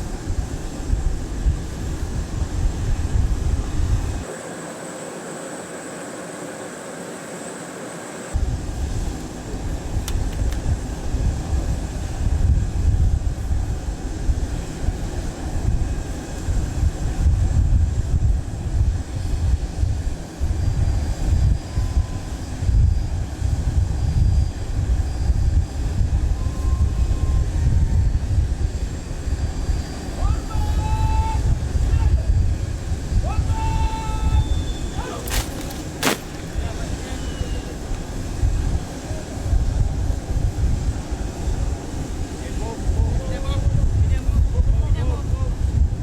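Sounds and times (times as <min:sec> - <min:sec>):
wind rumble on microphone: 0:00.0 - 0:04.3, 0:08.3 - 0:46.0
machinery noise with high whine: 0:00.0 - 0:12.7.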